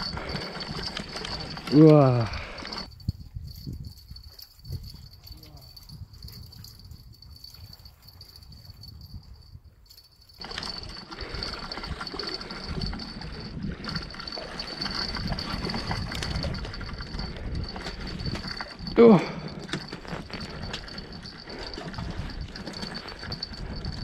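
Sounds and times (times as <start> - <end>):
rough handling rumble: 0.0 - 3.0
fishing reel cranking: 0.0 - 24.0.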